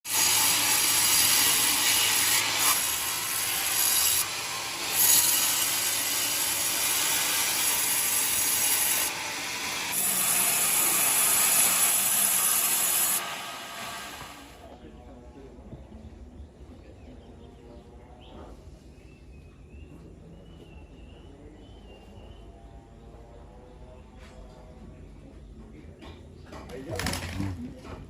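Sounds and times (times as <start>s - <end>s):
saw blade cutting wood: 0.1s - 14.7s.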